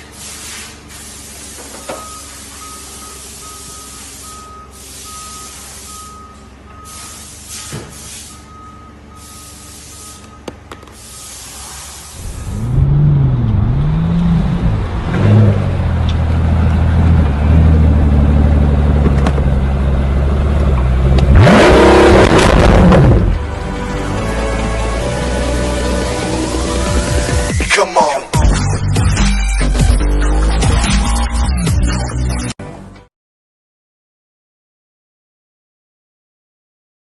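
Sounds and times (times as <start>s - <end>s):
air hiss: 0.0s - 1.6s, 11.0s - 12.3s
reversing alarm beeping: 1.9s - 13.3s
heavy vehicle engine revving: 11.0s - 27.5s.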